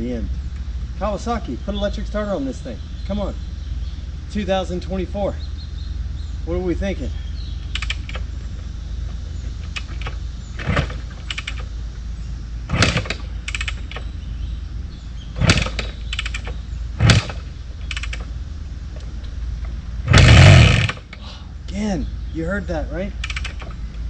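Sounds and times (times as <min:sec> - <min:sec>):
motorcycle kick-start knocks: 0:09.6 - 0:11.7, 0:12.7 - 0:14.1, 0:15.4 - 0:18.3, 0:23.2 - 0:23.8.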